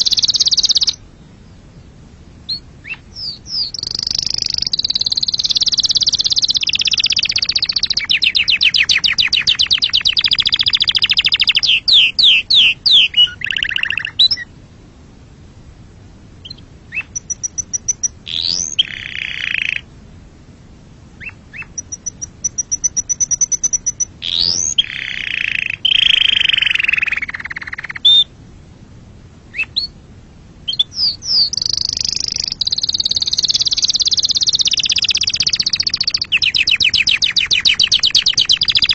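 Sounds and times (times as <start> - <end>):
canary singing: 0.0 - 1.8, 2.4 - 14.6, 16.4 - 19.9, 21.2 - 28.3, 29.5 - 30.0, 30.7 - 38.9.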